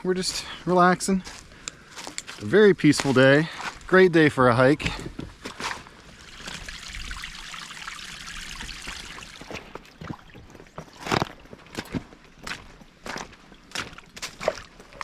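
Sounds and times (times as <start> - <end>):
footsteps on creek bed: 0.0 - 7.4, 8.8 - 15.0
creek trickling over stones: 5.6 - 15.0.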